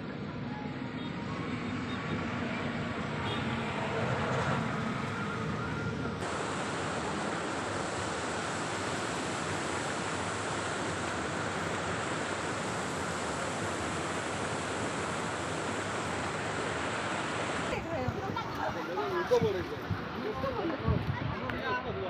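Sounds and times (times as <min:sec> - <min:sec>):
water rushing through a dam: 0:05.1 - 0:21.6.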